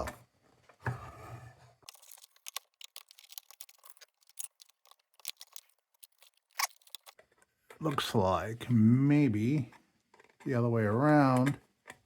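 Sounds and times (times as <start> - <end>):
small metal parts clicking and scraping: 1.9 - 7.3.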